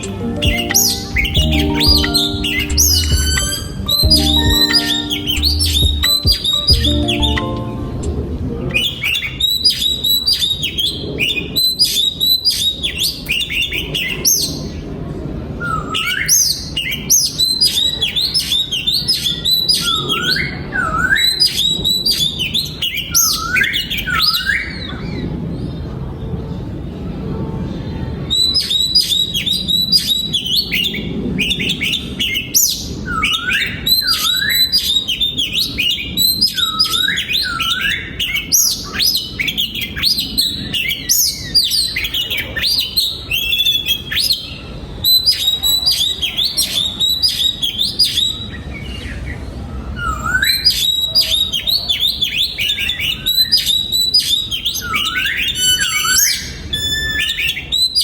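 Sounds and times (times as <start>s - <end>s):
bird singing whistled phrases: 0.0s - 7.5s, 50.0s - 58.0s.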